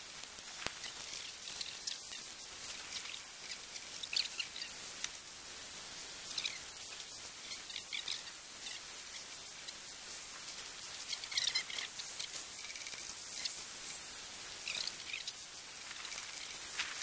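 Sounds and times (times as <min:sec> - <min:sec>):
high hiss of outdoor air: 0:00.0 - 0:17.0
birds chirping: 0:00.7 - 0:04.9, 0:06.2 - 0:10.0, 0:10.8 - 0:14.0, 0:14.6 - 0:17.0.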